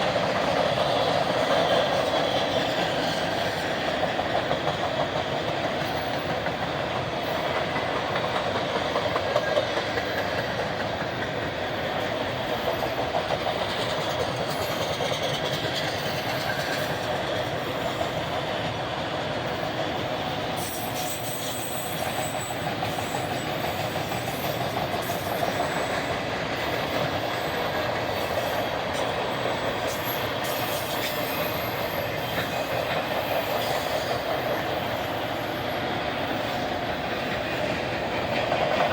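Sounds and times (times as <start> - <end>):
freight train rolling on rails: 0.0 - 38.9.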